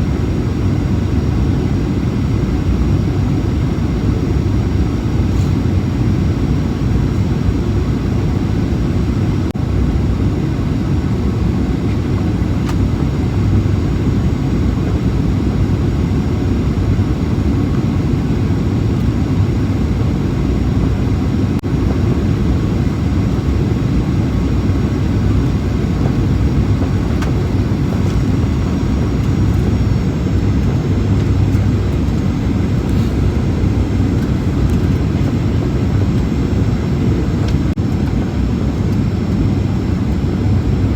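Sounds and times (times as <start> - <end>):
jet engines rumbling: 0.0 - 40.9.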